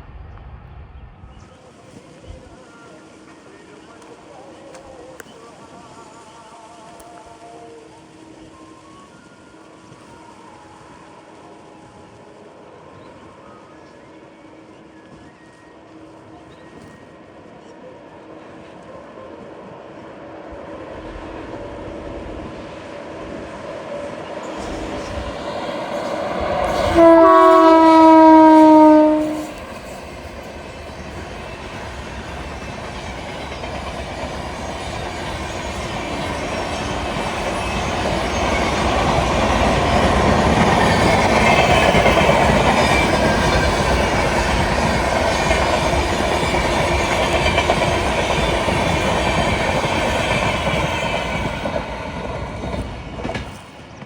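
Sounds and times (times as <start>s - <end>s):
train passing rumble: 0.0s - 54.0s
locomotive horn: 26.6s - 29.6s.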